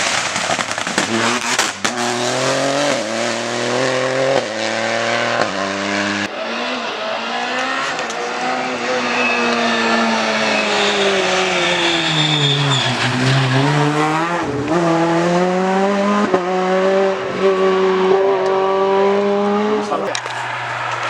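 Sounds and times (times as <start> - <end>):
rally car engine revving: 0.0 - 21.0
brief high squeal: 8.9 - 13.6.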